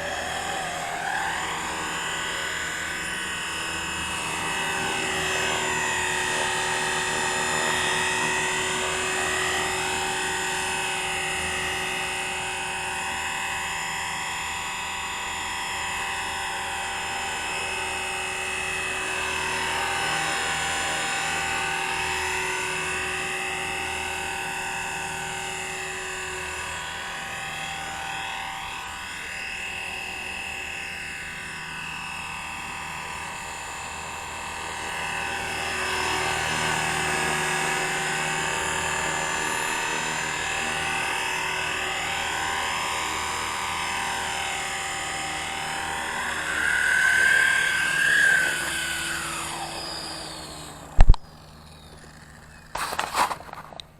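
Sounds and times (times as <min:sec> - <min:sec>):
rc helicopter motor whine: 0:00.0 - 0:53.9.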